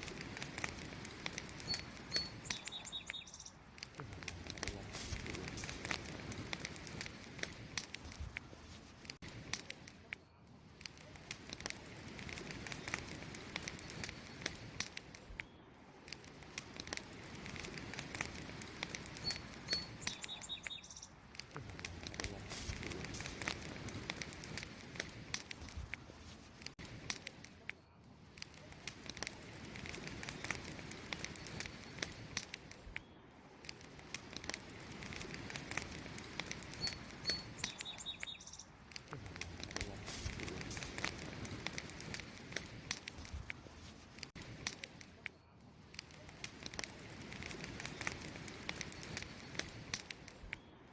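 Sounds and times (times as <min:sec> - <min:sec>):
campfire crackling and popping: 0:00.0 - 0:50.9
small bird chirping: 0:01.5 - 0:03.7, 0:19.1 - 0:21.2, 0:36.6 - 0:38.8.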